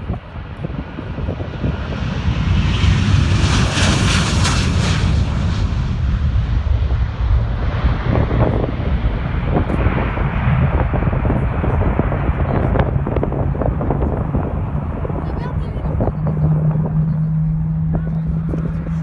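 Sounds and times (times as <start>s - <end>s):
jet airliner engine roar: 0.0s - 19.0s.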